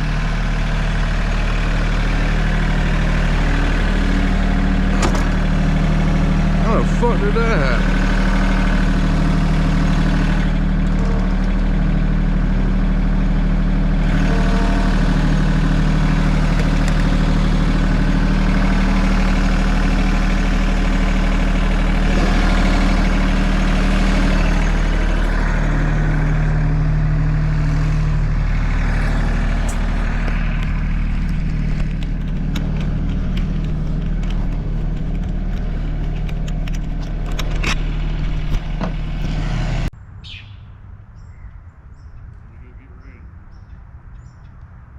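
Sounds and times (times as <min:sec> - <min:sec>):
large engine idling: 0:00.0 - 0:39.9.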